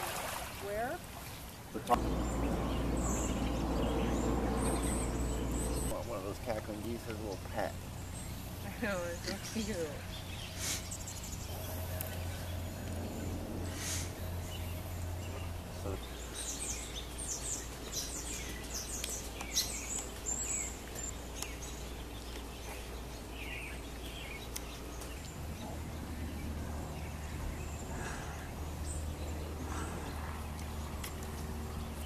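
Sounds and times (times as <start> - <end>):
birds chirping: 0.6 - 32.0
low rumble: 1.9 - 6.8, 10.0 - 16.3, 25.1 - 32.0.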